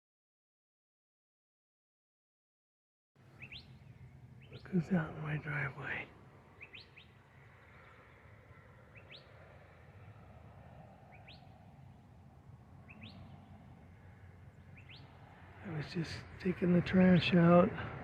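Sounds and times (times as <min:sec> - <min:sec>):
bird chirping faintly: 0:03.3 - 0:10.2, 0:10.8 - 0:12.1, 0:12.8 - 0:15.4.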